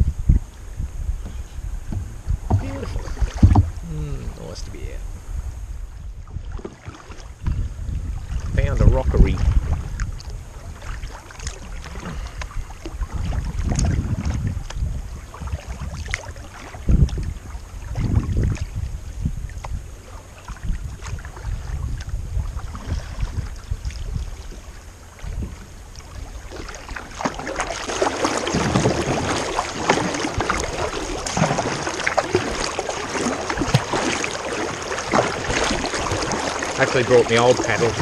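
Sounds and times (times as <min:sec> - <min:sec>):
wind rumbling on microphone: 0:00.0 - 0:38.0
paddle splashes: 0:00.3 - 0:04.9, 0:05.9 - 0:38.0
running water hiss: 0:24.5 - 0:38.0.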